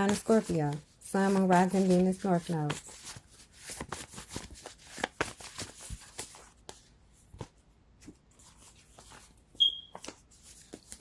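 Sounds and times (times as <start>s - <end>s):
cards shuffling: 0.0s - 11.0s
high chirp: 9.6s - 9.9s.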